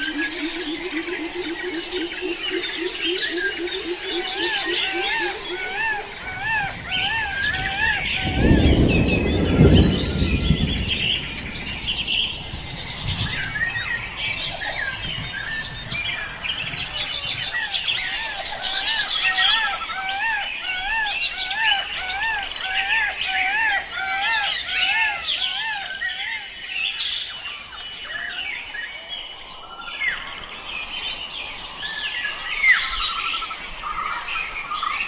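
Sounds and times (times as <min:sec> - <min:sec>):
rapidly repeated bird call: 0:00.0 - 0:29.5
forest birds chirping: 0:00.0 - 0:35.0
low rumble: 0:06.0 - 0:16.3.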